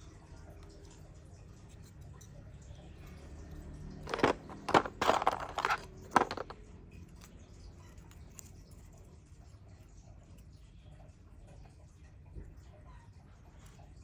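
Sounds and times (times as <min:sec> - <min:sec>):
wood pieces clacking: 0:04.0 - 0:06.6.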